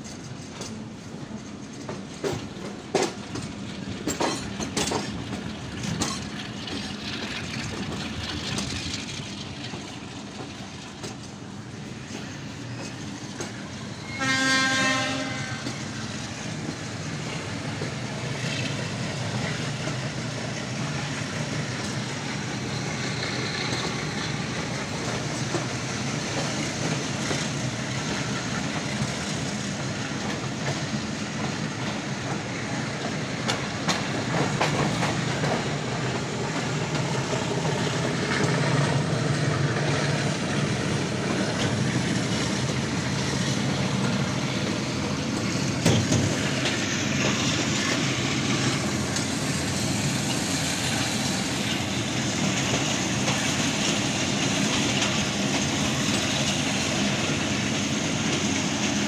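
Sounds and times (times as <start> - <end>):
train wheels on rails: 0.0 - 59.0
train horn: 14.0 - 15.9.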